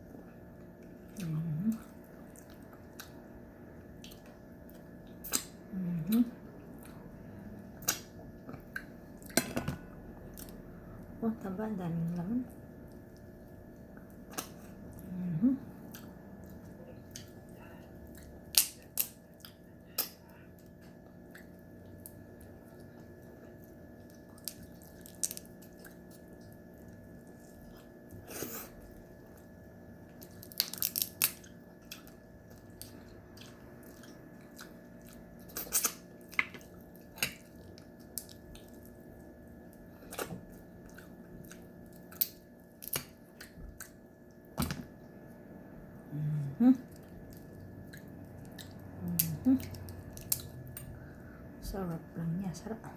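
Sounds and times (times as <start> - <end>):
faint hum: 0.0 - 52.9
person chewing: 1.1 - 5.6, 15.8 - 29.5, 30.1 - 44.4, 46.8 - 51.4
crab shell cracking: 24.4 - 25.7, 30.3 - 31.6, 42.2 - 43.2.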